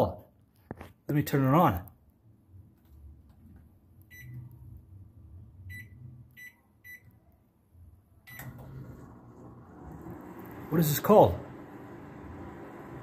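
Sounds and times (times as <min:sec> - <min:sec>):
microwave low hum: 0:02.4 - 0:13.0
microwave keypad beeps: 0:04.1 - 0:04.4, 0:05.7 - 0:07.2, 0:08.3 - 0:08.7
microwave switching on clunk: 0:08.3 - 0:10.8.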